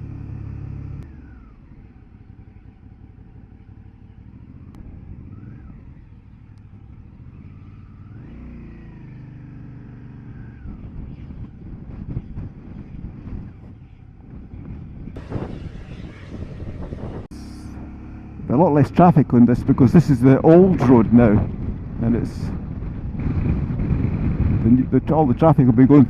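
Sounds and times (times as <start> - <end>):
motorcycle engine accelerating: 0.0 - 26.0
wind buffeting microphone: 10.2 - 26.0.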